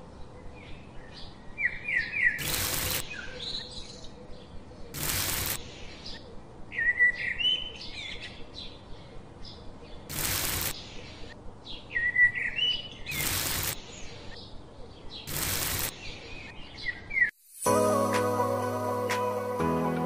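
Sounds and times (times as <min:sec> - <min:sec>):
birds chirping: 0:00.0 - 0:17.4
bursts of hiss: 0:02.4 - 0:03.0, 0:05.0 - 0:05.8, 0:10.1 - 0:11.2, 0:13.1 - 0:14.0, 0:15.3 - 0:16.0, 0:17.3 - 0:17.8.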